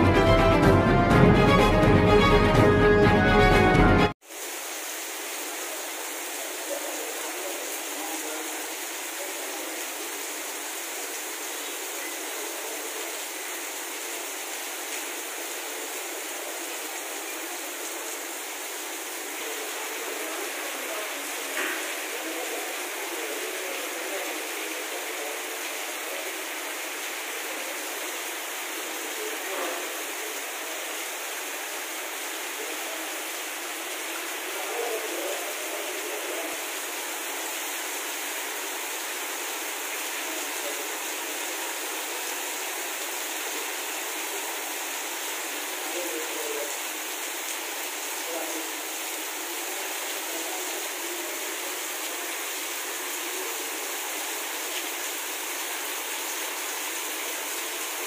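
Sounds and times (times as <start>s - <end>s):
heavy rain on pavement: 3.1s - 58.0s.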